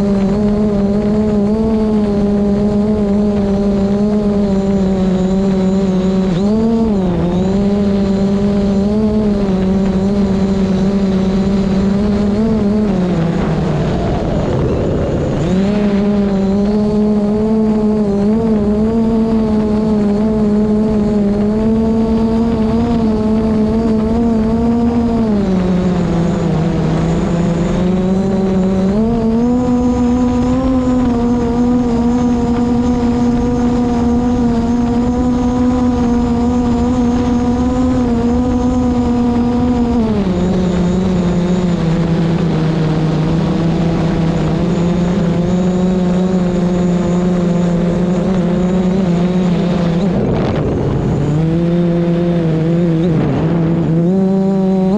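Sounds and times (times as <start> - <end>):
drone propellers humming: 0.0 - 54.9
wind rumble on microphone: 0.0 - 54.9.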